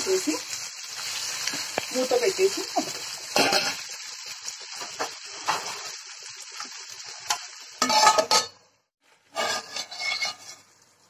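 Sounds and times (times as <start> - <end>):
onions and tomatoes sizzling in oil: 0.0 - 11.0
metal lid clattering on a pan: 7.3 - 8.6.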